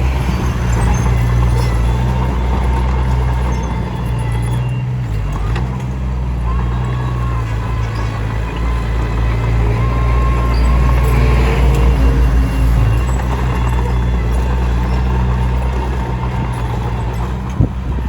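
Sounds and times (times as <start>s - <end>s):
bulldozer diesel engine droning: 0.0s - 18.0s.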